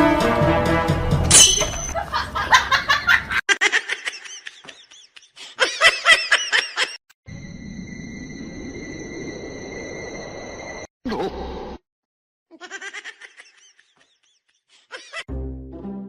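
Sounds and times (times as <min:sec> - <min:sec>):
high-pitched laughter: 0:12.5 - 0:15.3.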